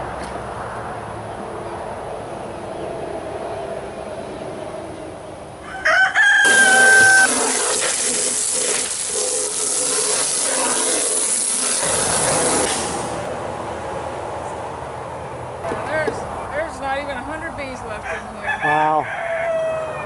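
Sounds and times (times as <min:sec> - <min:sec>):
rooster crowing: 0:05.6 - 0:07.4, 0:18.0 - 0:20.0
rough hissing noise: 0:06.5 - 0:13.3.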